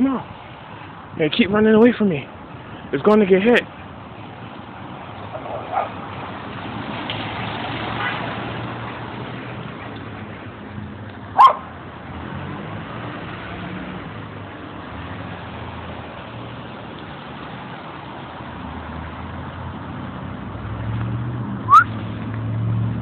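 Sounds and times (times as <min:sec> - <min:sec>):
street traffic: 0:00.0 - 0:23.0
sharp dog bark: 0:11.4 - 0:11.7.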